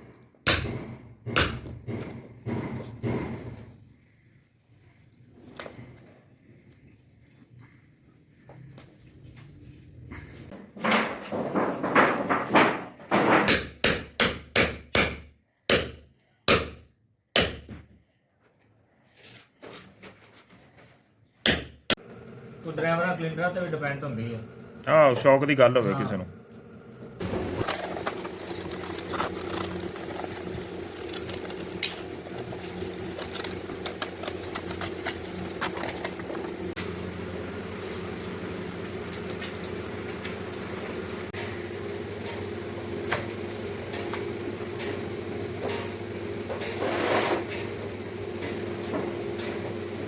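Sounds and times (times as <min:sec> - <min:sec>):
machine motor humming: 0:22.0 - 0:46.5.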